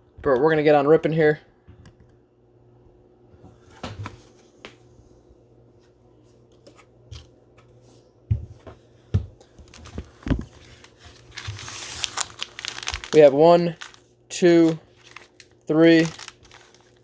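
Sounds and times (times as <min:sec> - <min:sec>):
card packs rustling: 0:09.6 - 0:17.0.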